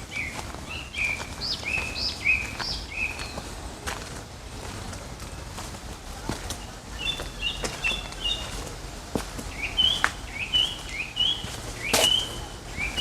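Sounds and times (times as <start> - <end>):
small bird chirping: 0.1 - 3.5, 6.9 - 8.6, 9.5 - 13.0.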